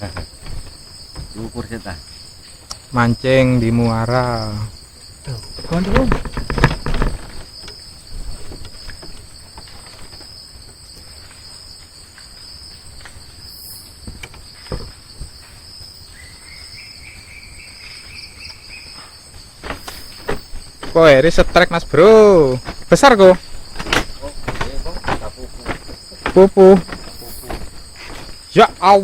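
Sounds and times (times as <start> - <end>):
low buzzing insect call: 0.0 - 29.0
night insects chirring: 0.0 - 29.0
knocks: 5.3 - 9.2.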